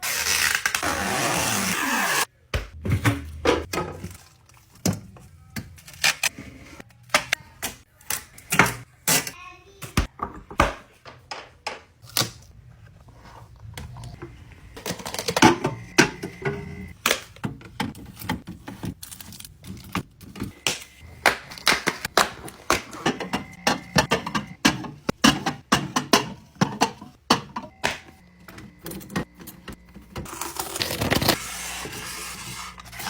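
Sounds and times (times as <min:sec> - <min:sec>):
snacks and containers being set down: 0:13.8 - 0:31.4.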